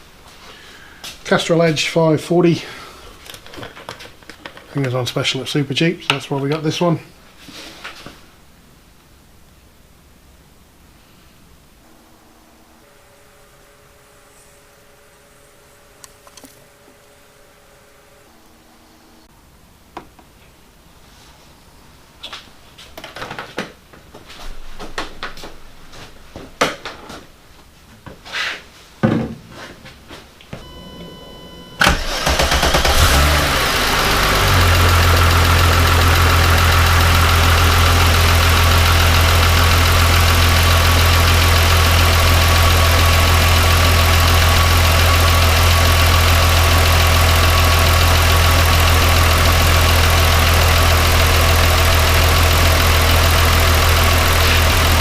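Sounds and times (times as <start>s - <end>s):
steady tone: 11.8s - 19.3s
car engine starting and idling: 30.6s - 55.0s.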